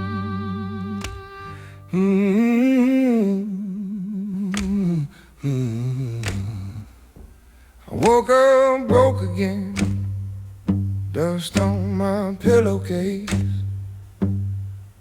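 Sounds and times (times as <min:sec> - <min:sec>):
plucked acoustic guitar: 0:00.0 - 0:02.1, 0:08.0 - 0:15.0
low held bass tone: 0:00.0 - 0:02.3, 0:08.9 - 0:15.0
person humming with vibrato: 0:00.0 - 0:02.7.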